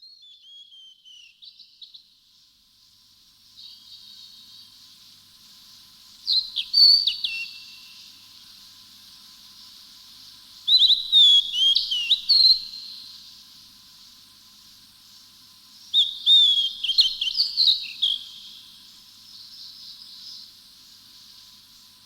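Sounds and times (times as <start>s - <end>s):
songbird whistling: 0.0s - 1.6s, 6.3s - 8.0s, 10.7s - 13.0s, 16.0s - 18.6s
steady high hiss: 0.0s - 22.0s.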